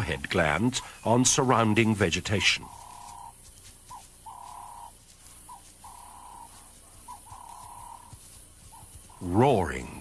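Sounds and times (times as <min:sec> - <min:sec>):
bird hooting call: 0:02.4 - 0:09.2.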